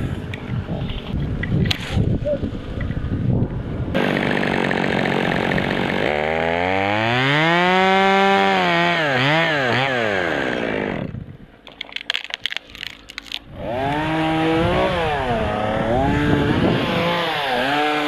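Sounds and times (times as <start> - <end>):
chainsaw engine revving: 4.0 - 11.2, 13.5 - 18.0.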